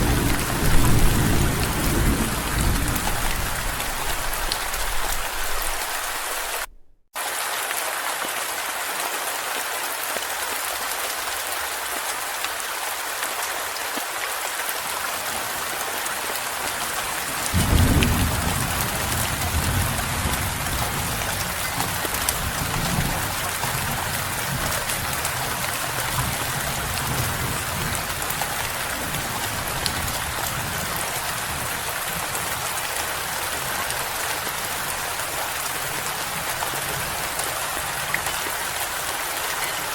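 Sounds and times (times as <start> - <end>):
low rolling thunder: 0.0 - 6.9, 17.5 - 24.6
steady rain falling: 0.0 - 39.9.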